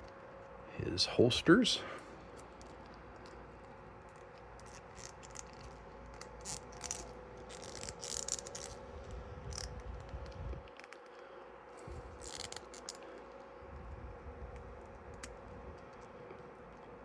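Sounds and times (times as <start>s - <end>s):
faint steady hum: 0.0s - 17.0s
plastic toy parts clicking: 4.6s - 8.8s.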